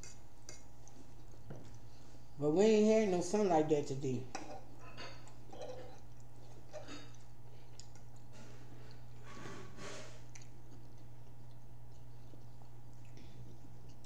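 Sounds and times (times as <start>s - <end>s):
chewing with wet mouth clicks: 0.0s - 1.9s, 4.8s - 9.2s, 10.2s - 14.0s.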